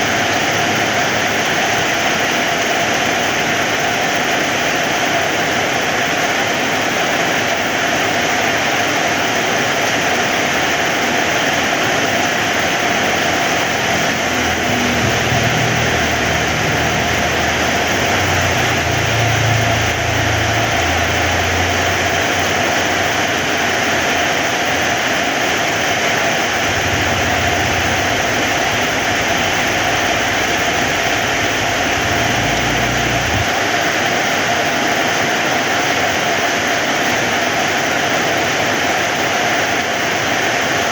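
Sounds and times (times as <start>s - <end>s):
heavy rain falling: 0.0s - 40.9s
low rumble: 13.4s - 23.4s, 26.2s - 33.6s.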